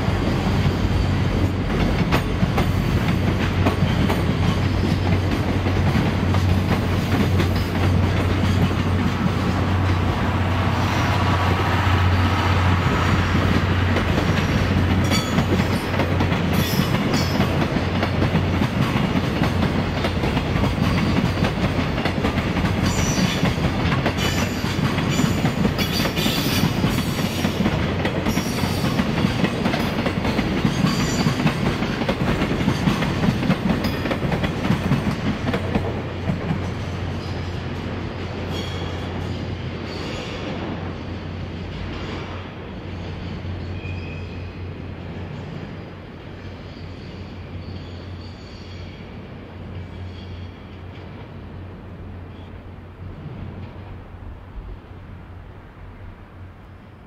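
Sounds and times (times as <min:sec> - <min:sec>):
train wheels clattering over rail joints: 0:00.3 - 0:11.5, 0:12.6 - 0:40.3
high wheel squeals: 0:38.4 - 0:40.6, 0:42.9 - 0:44.6, 0:49.8 - 0:50.7.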